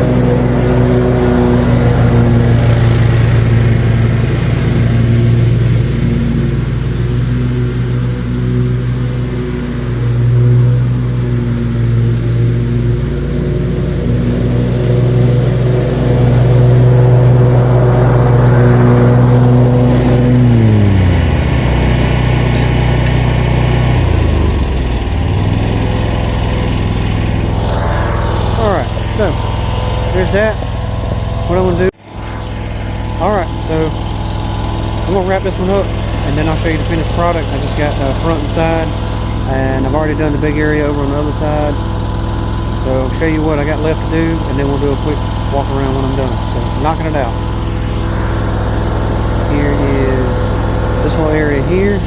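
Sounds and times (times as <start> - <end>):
riding lawn mower engine: 0.0 - 52.0.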